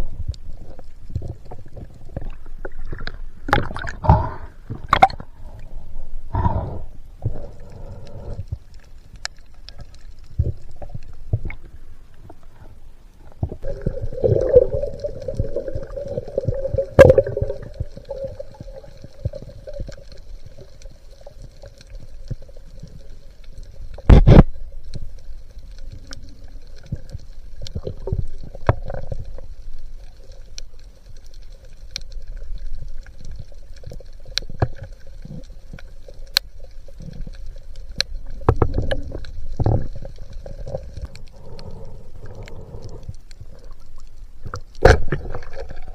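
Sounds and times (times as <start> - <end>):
underwater low hum: 0.0 - 45.9
underwater clicks and knocks: 1.1 - 5.3, 23.9 - 24.6, 37.9 - 41.2, 44.4 - 45.9.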